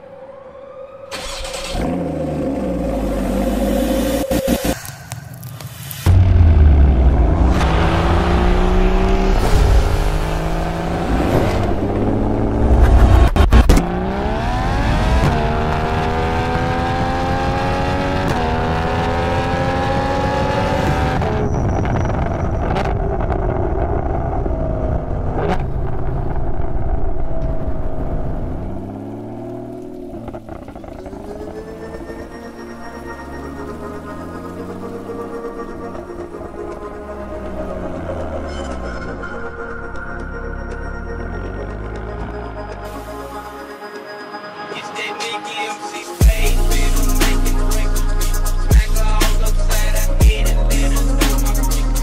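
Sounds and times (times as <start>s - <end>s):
car engine revving: 1.1s - 4.9s, 5.8s - 39.6s
music: 31.6s - 52.0s.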